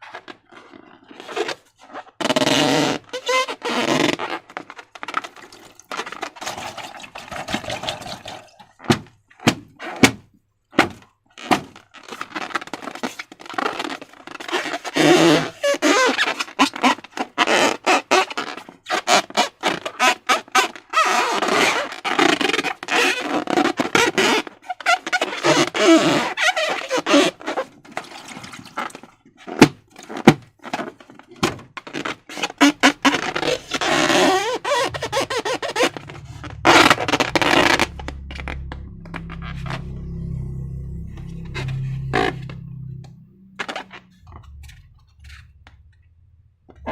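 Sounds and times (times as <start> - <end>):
slime squelching and crackling: 4.5 - 9.0
low background music: 32.8 - 45.8.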